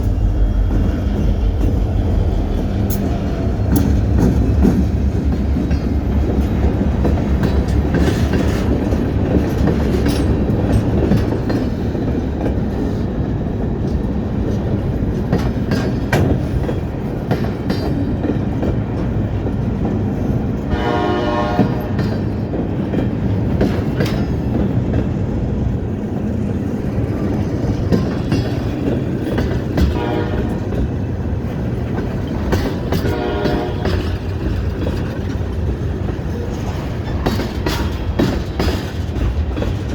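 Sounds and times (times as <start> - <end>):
train rumbling: 0.0 - 39.9
locomotive horn blasts: 20.7 - 22.1, 29.8 - 30.8, 33.0 - 34.2.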